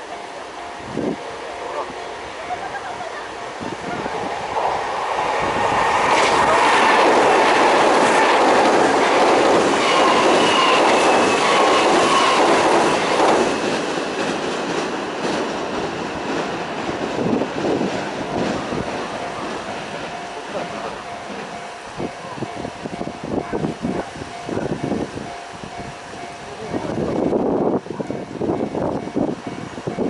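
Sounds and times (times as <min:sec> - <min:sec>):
electric train passing at speed: 0:00.0 - 0:30.0
thin wheel squeal: 0:09.8 - 0:12.7.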